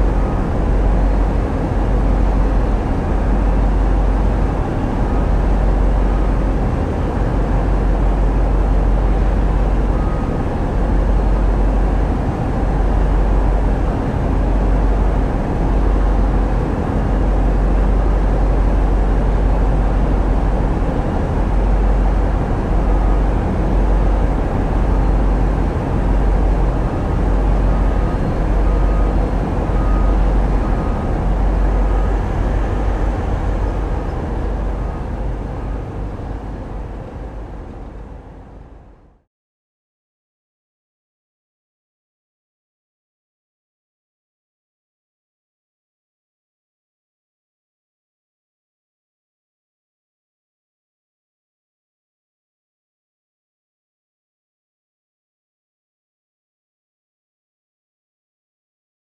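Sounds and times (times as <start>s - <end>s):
diesel engines droning: 0.0s - 39.2s.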